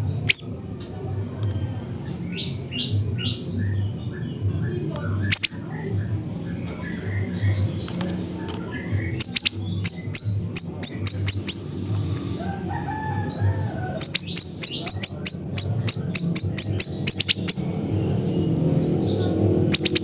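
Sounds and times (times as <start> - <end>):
bird chirping high and sharp: 0.2 - 0.6, 5.2 - 5.7, 8.7 - 11.7, 14.0 - 17.7, 18.9 - 20.0.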